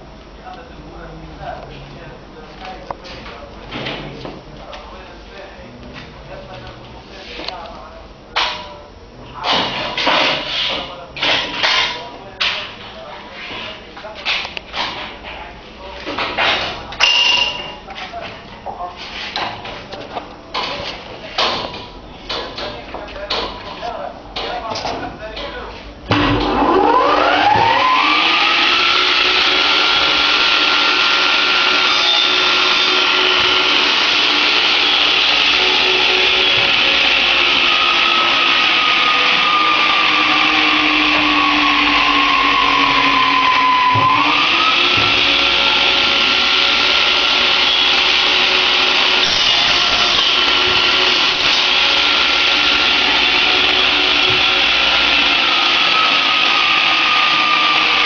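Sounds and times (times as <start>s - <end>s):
power tool motor whining: 26.5s - 58.0s.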